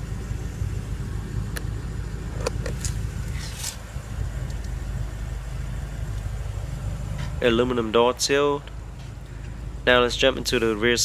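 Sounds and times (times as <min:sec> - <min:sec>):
car engine idling: 0:00.0 - 0:11.0
short rustle: 0:02.7 - 0:04.0.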